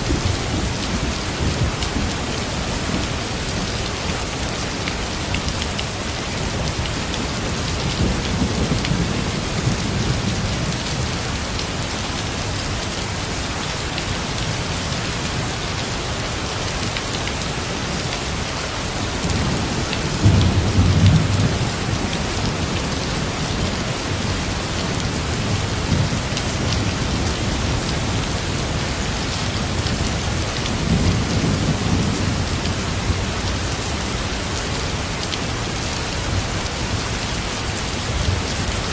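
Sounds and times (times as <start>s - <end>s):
rain pouring: 0.0s - 38.9s.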